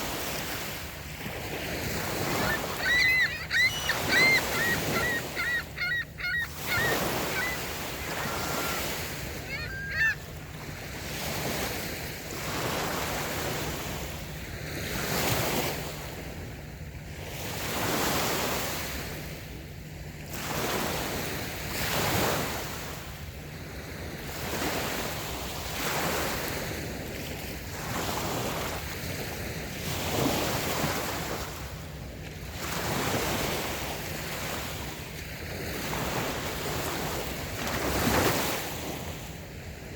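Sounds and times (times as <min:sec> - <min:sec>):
waves washing up a beach: 0:00.0 - 0:39.9
bird calling: 0:02.2 - 0:10.3.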